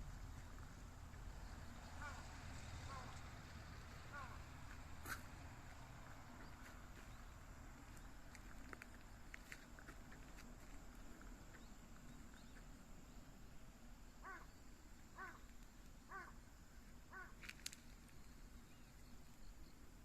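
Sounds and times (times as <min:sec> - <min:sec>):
quiet rural background: 0:00.0 - 0:20.0
bird calling: 0:01.6 - 0:03.3, 0:03.9 - 0:05.3, 0:14.2 - 0:15.5, 0:16.1 - 0:16.4, 0:17.1 - 0:17.4.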